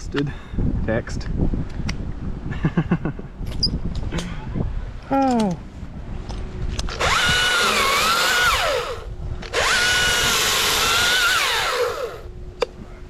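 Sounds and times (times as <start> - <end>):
chainsaw revving: 7.0 - 12.3.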